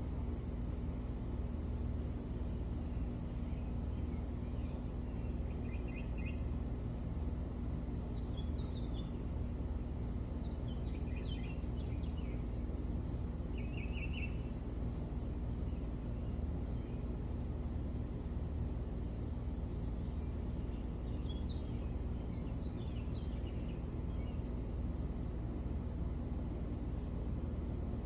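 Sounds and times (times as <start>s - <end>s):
low background hum: 0.0s - 28.0s
faint bird chirps: 2.8s - 6.6s, 8.1s - 9.3s, 10.4s - 12.7s, 13.5s - 14.6s, 19.6s - 24.8s.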